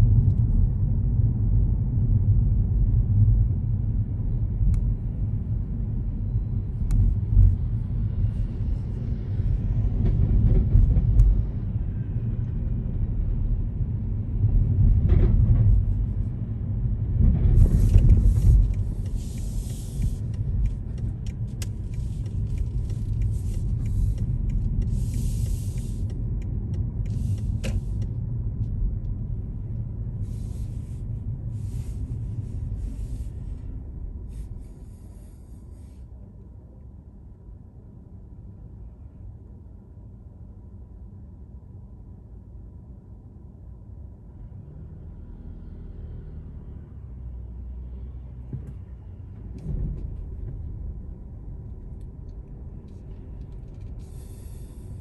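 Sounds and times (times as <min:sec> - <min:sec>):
car engine and road rumble: 0:00.0 - 0:55.0
hiss bursts: 0:25.0 - 0:26.0.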